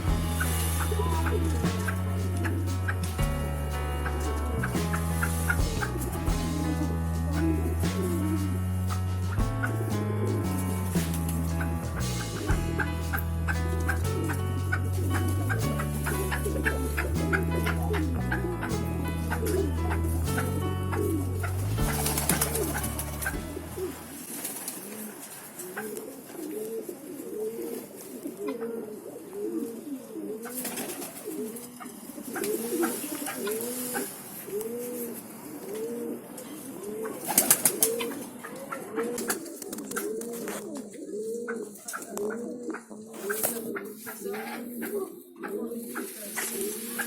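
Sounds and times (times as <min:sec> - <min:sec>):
loud rush of noise: 0:00.0 - 0:14.0
music: 0:00.0 - 0:24.7
pigeons cooing: 0:19.3 - 0:47.0.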